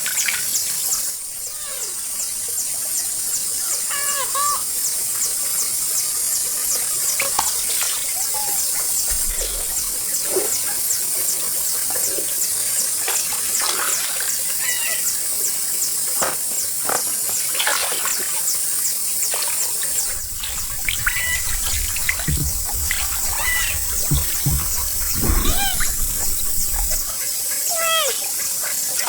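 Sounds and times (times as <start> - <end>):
water splashing and sloshing: 7.2 - 10.6, 19.3 - 27.2.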